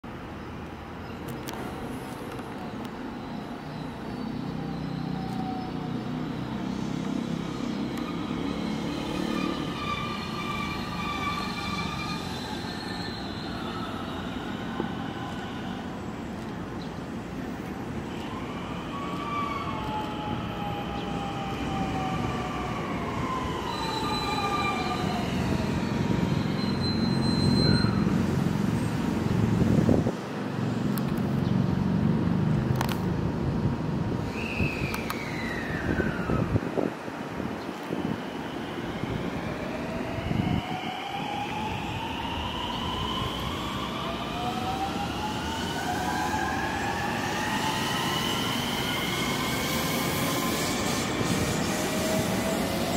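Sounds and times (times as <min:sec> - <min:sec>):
train wheels rumbling on rail: 0:06.7 - 0:31.3, 0:34.0 - 0:52.9
high whining and squealing: 0:06.8 - 0:16.1, 0:18.1 - 0:28.9, 0:37.9 - 0:52.9.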